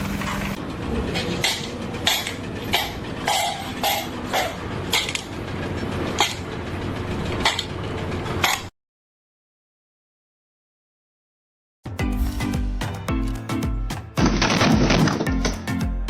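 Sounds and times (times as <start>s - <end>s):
steady background noise: 0.0s - 8.7s
sharp clanks or knocks: 1.2s - 5.3s.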